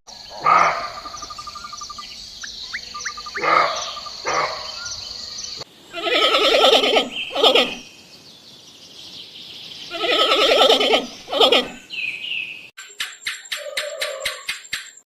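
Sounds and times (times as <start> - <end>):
wild turkey gobbling: 0.3 - 2.1, 2.7 - 4.6, 13.5 - 14.6.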